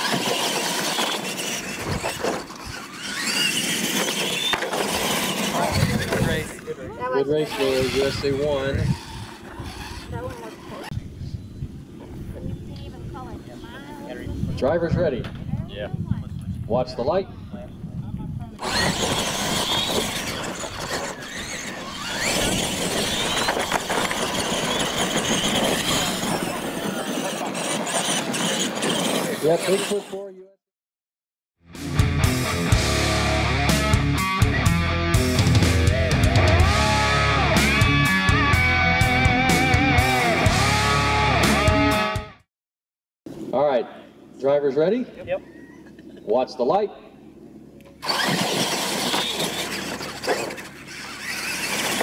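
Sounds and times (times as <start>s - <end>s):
tyres rushing on dirt: 0.0s - 10.9s, 18.6s - 30.2s, 48.0s - 52.0s
toy truck motors whining: 0.0s - 11.0s, 18.6s - 30.3s, 48.0s - 52.0s.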